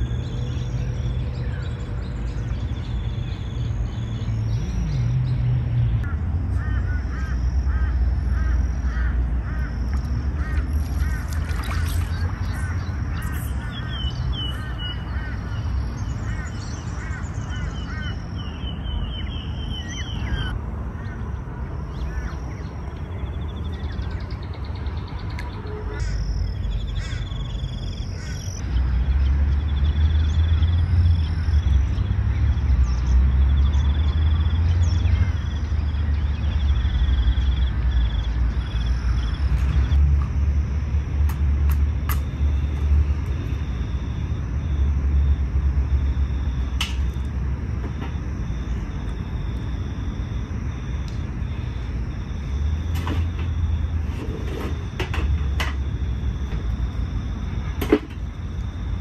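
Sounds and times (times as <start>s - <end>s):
birds short repeated calls: 6.0s - 21.2s
steady low rumble: 35.1s - 59.0s.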